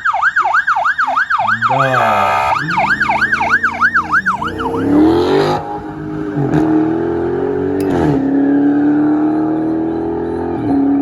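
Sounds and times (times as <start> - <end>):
car engine accelerating hard: 2.6 - 11.0.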